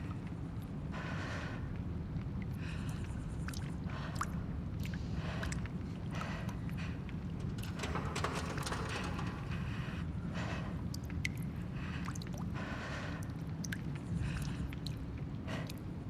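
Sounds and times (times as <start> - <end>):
small drips and clicks: 2.2 - 5.7, 13.2 - 15.8.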